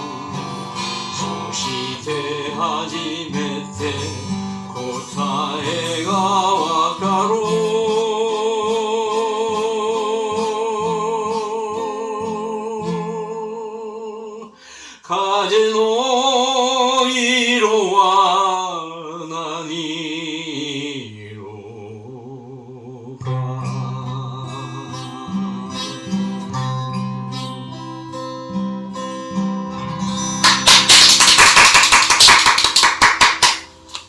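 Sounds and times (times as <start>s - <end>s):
person singing with vibrato: 0.0s - 25.9s
musical accompaniment: 29.8s - 34.0s.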